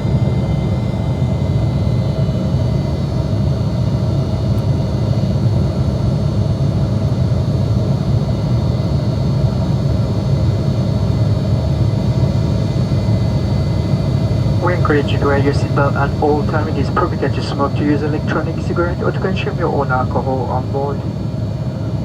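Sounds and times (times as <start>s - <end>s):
jet cabin engine roar: 0.0s - 22.0s
faint steady whines: 11.9s - 22.0s.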